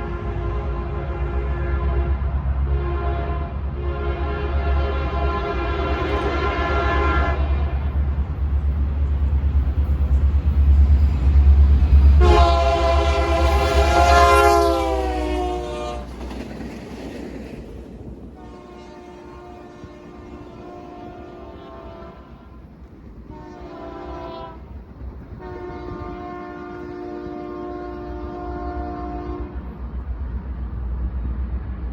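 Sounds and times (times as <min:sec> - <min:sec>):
locomotive air horn: 0:00.0 - 0:07.8, 0:12.2 - 0:16.1, 0:18.4 - 0:22.7, 0:23.3 - 0:24.7, 0:25.3 - 0:29.7
train rumble: 0:00.0 - 0:31.9.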